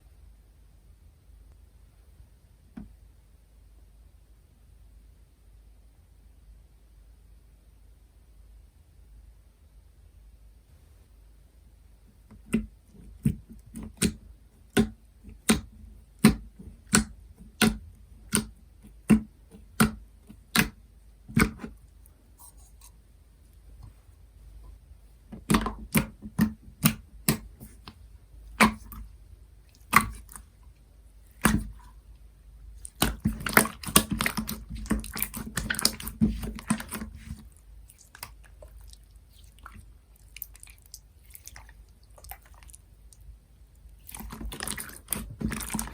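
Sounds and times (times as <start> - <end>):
slime squishing with wet pops: 12.2 - 22.7, 24.7 - 45.9
crackling squelches: 21.3 - 45.9.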